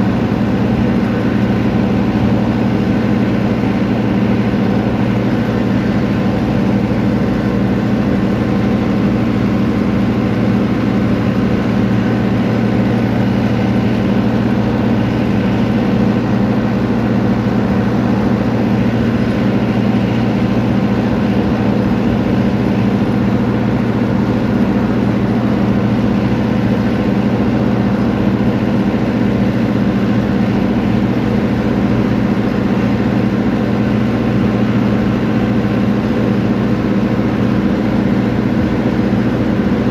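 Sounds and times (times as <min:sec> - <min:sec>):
steady engine drone: 0:00.0 - 0:39.9.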